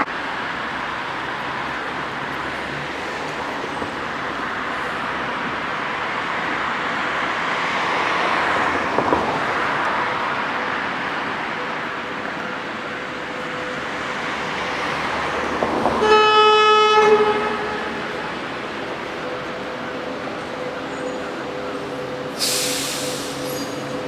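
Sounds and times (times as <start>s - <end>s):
passing traffic: 0.0s - 24.0s
train horn blast: 15.9s - 18.3s.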